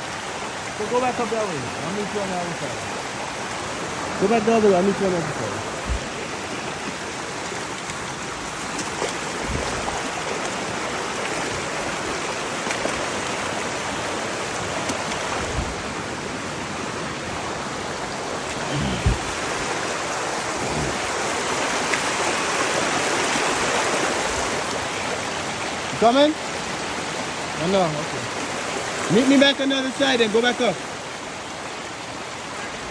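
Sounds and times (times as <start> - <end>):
river rushing: 0.0 - 32.9
dull low thumps: 5.7 - 6.5, 15.4 - 15.8, 18.7 - 19.7.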